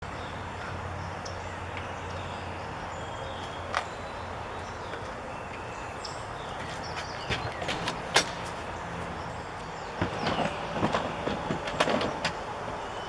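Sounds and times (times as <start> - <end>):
bird chirps: 0.0 - 8.0.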